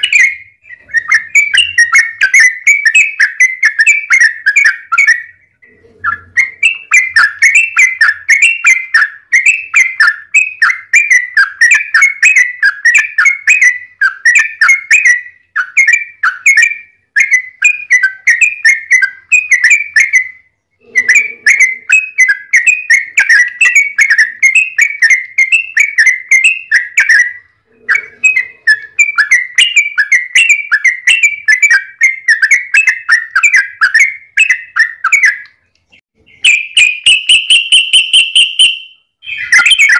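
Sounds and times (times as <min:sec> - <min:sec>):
bulbul chattering song: 0:00.0 - 0:39.9.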